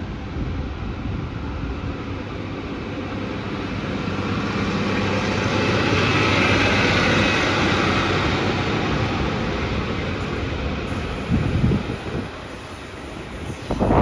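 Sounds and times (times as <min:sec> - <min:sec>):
train passing with rushing rumble: 0:00.0 - 0:14.0.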